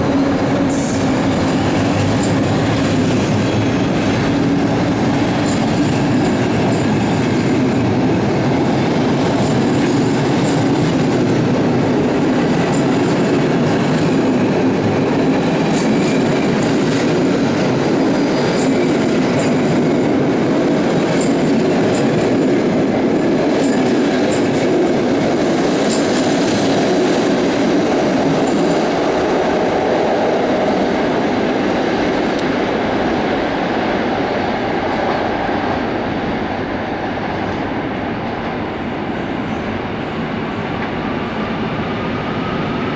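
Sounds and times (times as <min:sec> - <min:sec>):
train rumble: 0:00.0 - 0:42.9
train wheels clicking over rail joints: 0:00.1 - 0:07.9, 0:08.5 - 0:30.0.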